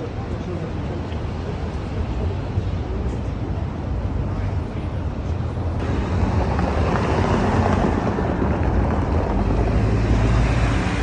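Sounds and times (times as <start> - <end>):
motor vehicle rumbling past: 5.8 - 11.0.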